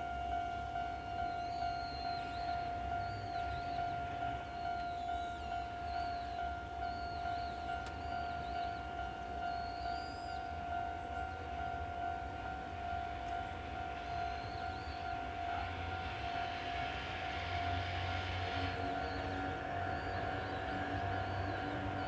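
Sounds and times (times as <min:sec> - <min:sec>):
steady high-pitched tone: 0:00.0 - 0:22.0
small birds chirping: 0:01.3 - 0:11.5
train rolling hiss: 0:12.3 - 0:22.0.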